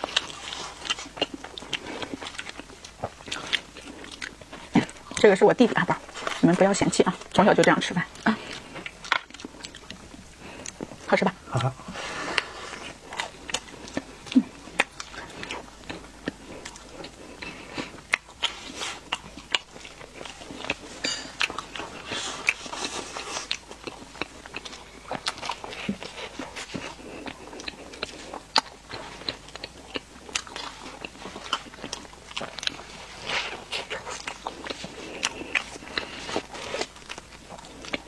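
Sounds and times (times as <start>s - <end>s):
close chewing and wet smacks: 0.0s - 38.0s.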